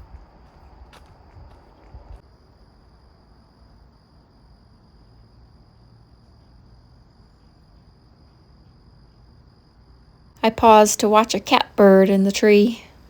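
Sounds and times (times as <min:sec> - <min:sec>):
footsteps on trail: 0:00.0 - 0:02.2.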